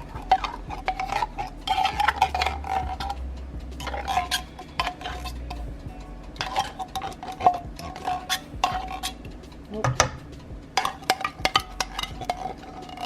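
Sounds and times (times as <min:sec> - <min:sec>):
spoon scraping inside metal can: 0:00.0 - 0:03.2, 0:03.8 - 0:05.4, 0:06.4 - 0:09.2, 0:10.8 - 0:13.0.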